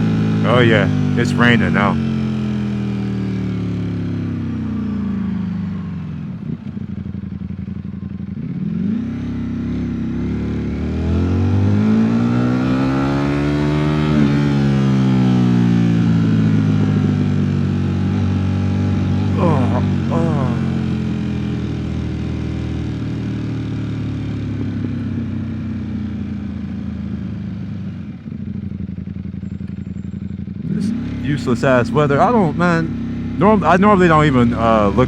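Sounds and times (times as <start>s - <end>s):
motorcycle engine: 0.0s - 25.8s.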